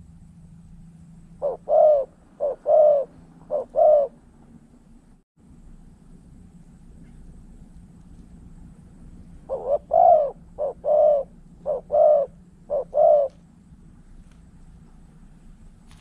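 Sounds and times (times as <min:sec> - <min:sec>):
dove cooing: 0:01.4 - 0:04.4, 0:09.4 - 0:13.5.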